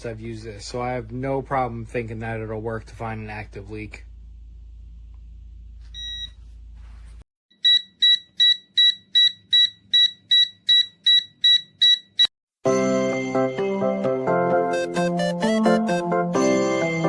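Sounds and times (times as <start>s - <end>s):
leak detector beeping: 5.9s - 6.5s, 7.5s - 12.3s
music: 12.6s - 17.0s.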